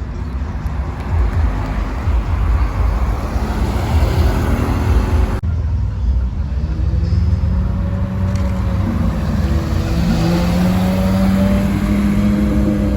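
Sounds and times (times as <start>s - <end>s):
crowd noise: 0.0s - 11.6s
road noise: 0.0s - 12.9s
sports car engine droning: 0.2s - 12.9s.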